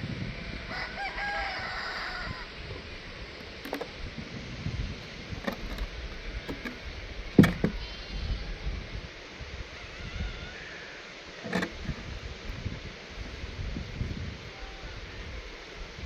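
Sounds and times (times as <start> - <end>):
sharp knocks: 5.4 - 7.8.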